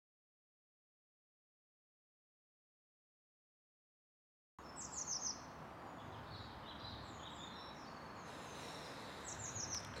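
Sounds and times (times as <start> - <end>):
birds chirping: 4.6 - 10.0
outdoor background hiss: 4.6 - 10.0.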